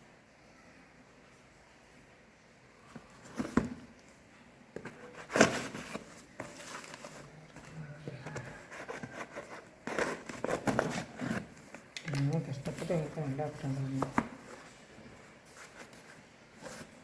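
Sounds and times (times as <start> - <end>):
packaging rustling and knocking: 3.0 - 4.0, 4.8 - 14.9.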